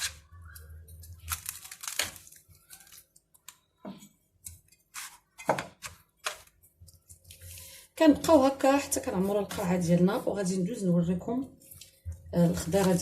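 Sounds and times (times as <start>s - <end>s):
wet squishes of packed lemons: 0.2s - 3.8s.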